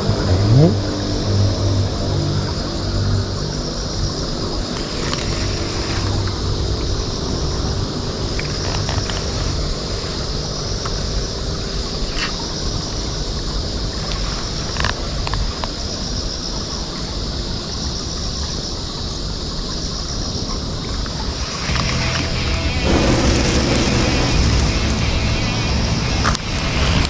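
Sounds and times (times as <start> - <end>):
wind rumbling on microphone: 0.0 - 27.0
steady high-pitched drone: 21.7 - 27.0.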